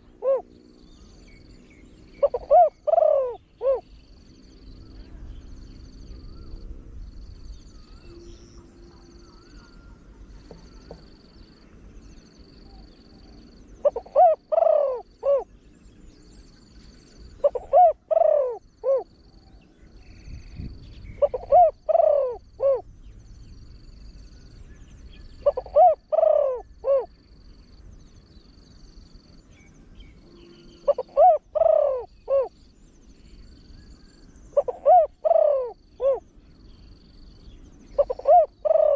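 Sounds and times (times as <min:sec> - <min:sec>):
dove cooing: 0:00.0 - 0:00.6, 0:02.0 - 0:04.0, 0:09.2 - 0:11.2, 0:12.7 - 0:15.6, 0:17.4 - 0:19.2, 0:21.0 - 0:22.9, 0:25.4 - 0:27.2, 0:30.7 - 0:32.6, 0:34.5 - 0:36.3, 0:37.9 - 0:38.9.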